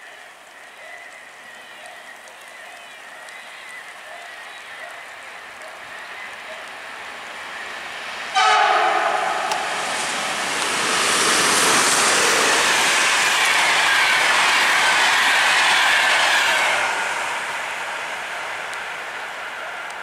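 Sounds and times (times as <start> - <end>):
train passing at speed: 5.9 - 20.0
falling whine: 8.4 - 13.2.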